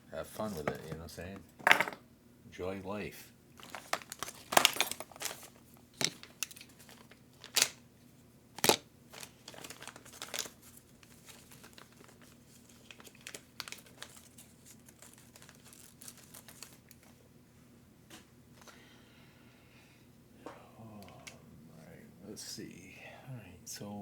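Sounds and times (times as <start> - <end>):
plastic bags crinkling: 3.6 - 7.8, 8.6 - 17.1.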